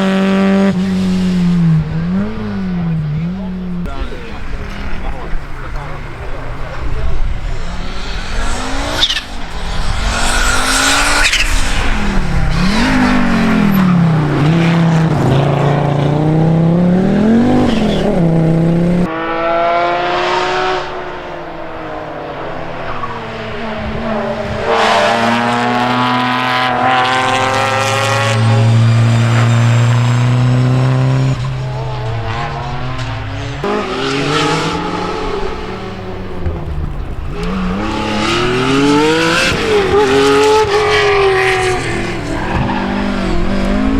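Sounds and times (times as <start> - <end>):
rally car engines revving: 0.0 - 43.9.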